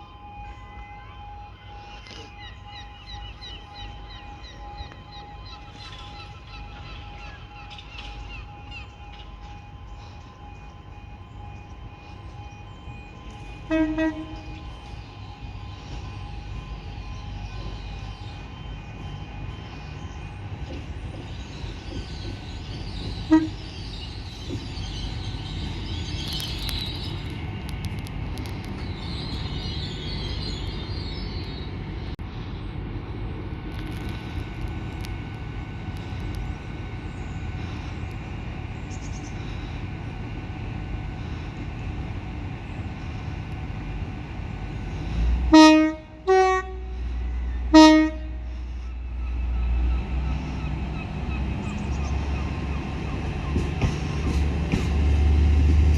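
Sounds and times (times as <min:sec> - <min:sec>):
train horn toot: 0:00.0 - 0:18.4, 0:23.0 - 0:24.2, 0:45.0 - 0:50.3
train rumbling: 0:00.0 - 0:55.9.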